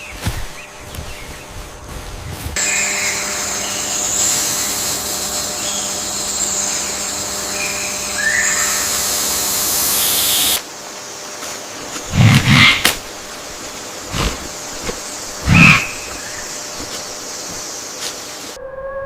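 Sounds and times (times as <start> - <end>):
high-pitched insect chorus hiss: 2.6 - 18.6
short bird calls: 15.4 - 16.6.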